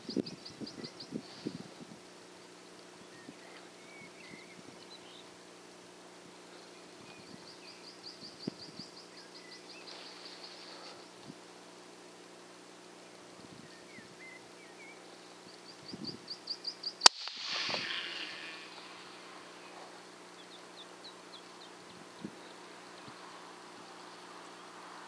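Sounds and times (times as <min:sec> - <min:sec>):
faint steady hum: 0:00.0 - 0:25.0
short bird chirps: 0:17.0 - 0:19.2.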